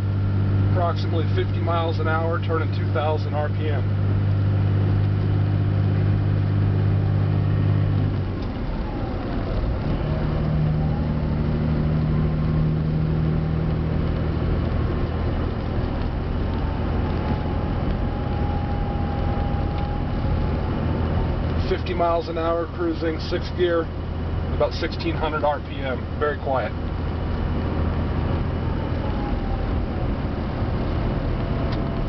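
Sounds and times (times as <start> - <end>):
diesel truck engine droning: 0.0 - 32.0
turbo whistle: 17.3 - 20.4.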